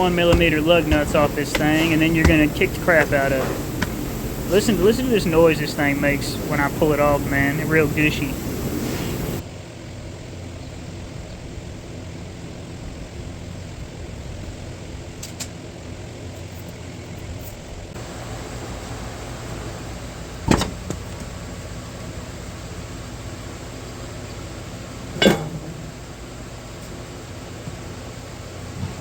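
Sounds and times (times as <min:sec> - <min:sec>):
hard object knocking: 0:00.0 - 0:04.1
low mechanical hum: 0:00.0 - 0:29.0.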